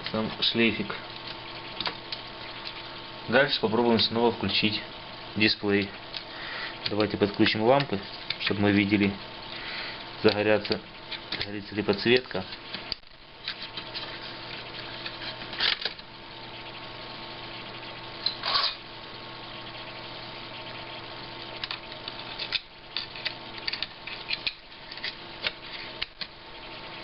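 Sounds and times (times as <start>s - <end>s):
faint hum: 0.0s - 27.0s
cables and connectors clicking: 5.8s - 8.6s.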